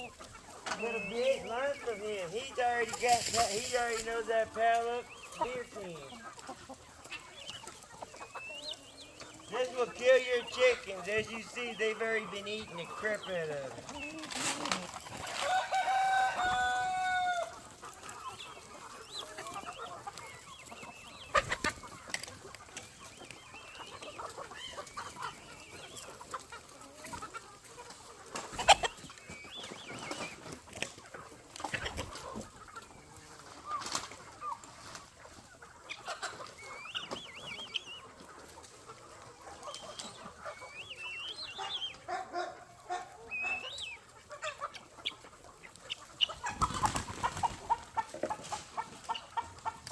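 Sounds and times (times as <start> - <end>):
chickens clucking: 0.0 - 49.9.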